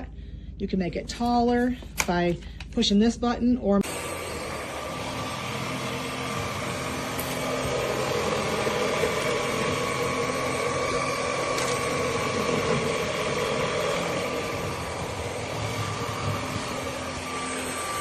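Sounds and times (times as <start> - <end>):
stick vacuum running: 3.8 - 18.0.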